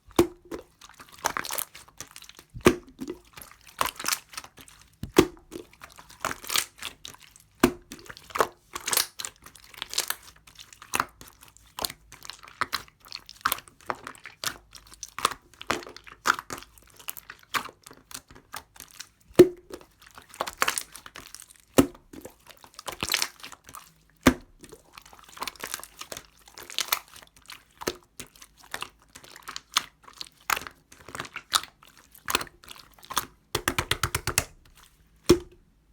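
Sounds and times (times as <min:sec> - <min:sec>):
slime squished by hand: 0:00.0 - 0:11.0.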